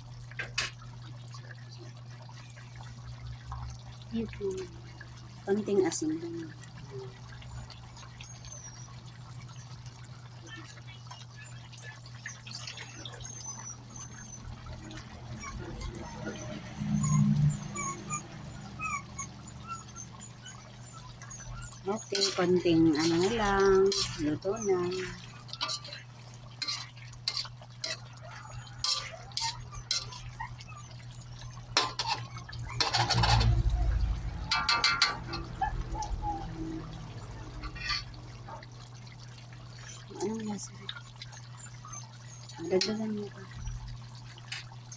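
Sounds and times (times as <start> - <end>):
metal spoon scraping a pan: 21.9 - 30.4, 31.8 - 33.7, 34.5 - 35.6, 37.6 - 38.2
curry bubbling in a wok: 22.1 - 42.6.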